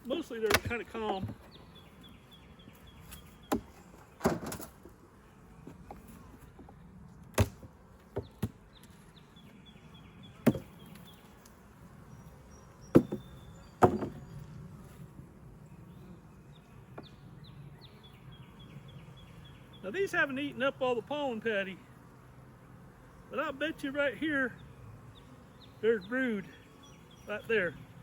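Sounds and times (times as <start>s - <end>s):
birds chirping faintly: 0.0s - 28.0s
low hum of bees: 0.0s - 28.0s
knocks and clunks of hive parts: 0.3s - 1.6s, 3.0s - 5.0s, 5.6s - 9.0s, 10.4s - 11.2s, 12.8s - 14.5s.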